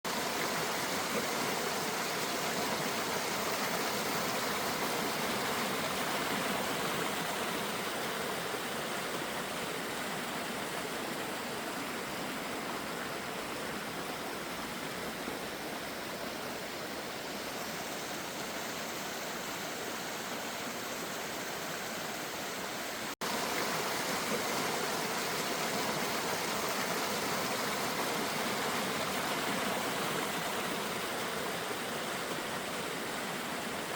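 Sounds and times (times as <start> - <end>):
river water rushing: 0.1 - 33.9.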